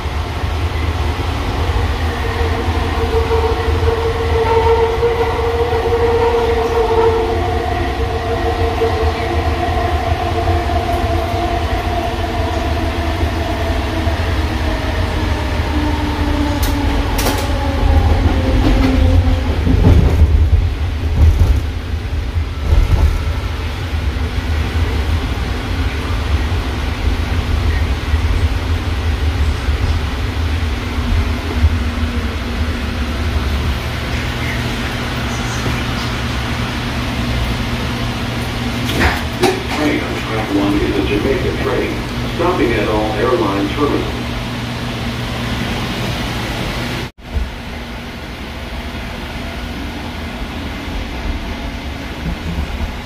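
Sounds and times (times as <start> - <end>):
train car rumble: 0.0 - 53.0
train car knocks: 38.9 - 39.8.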